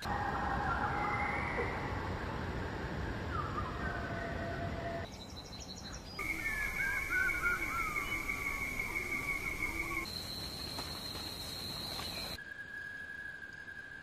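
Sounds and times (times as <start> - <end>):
bird calls: 5.1 - 12.4
steady background hiss: 6.2 - 14.0.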